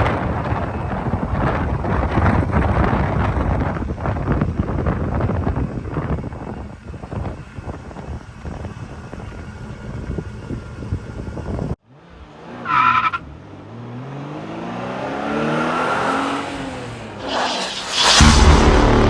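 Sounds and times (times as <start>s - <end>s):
vehicle engine rumbling: 0.0s - 14.0s, 15.1s - 19.0s
short high squeal: 16.5s - 18.6s.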